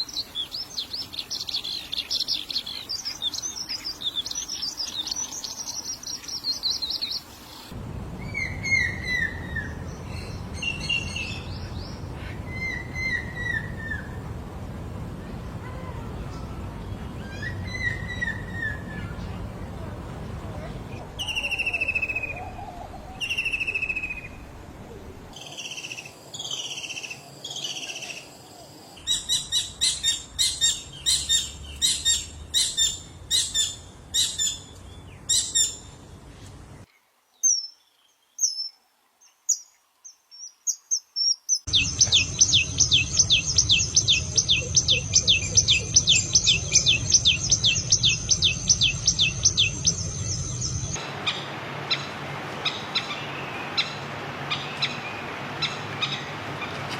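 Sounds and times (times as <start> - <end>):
bird singing high trill: 41.7 - 52.1
low hum: 41.7 - 56.8.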